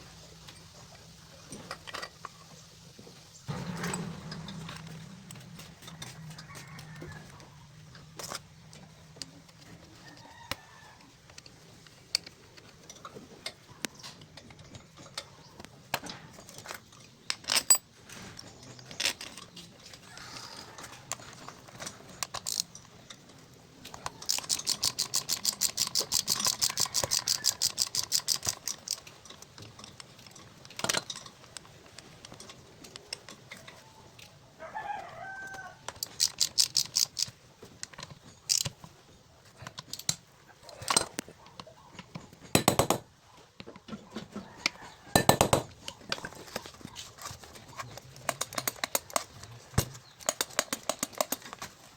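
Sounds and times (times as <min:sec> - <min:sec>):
metal parts clicking and knocking: 0:00.4 - 0:02.6, 0:03.4 - 0:34.4, 0:35.5 - 0:51.9.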